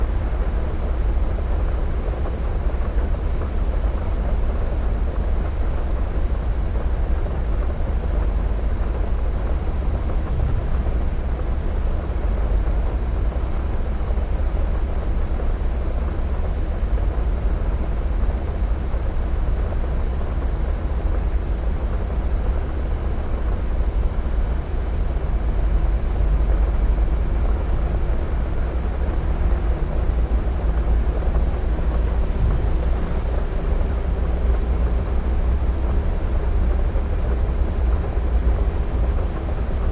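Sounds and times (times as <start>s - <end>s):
wind noise on microphone: 8.1s - 13.4s.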